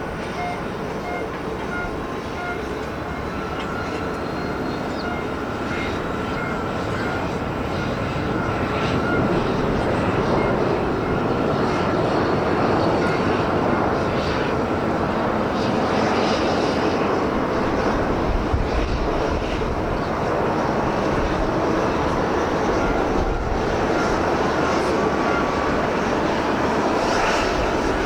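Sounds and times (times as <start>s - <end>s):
jet airliner engines landing: 0.0s - 28.0s.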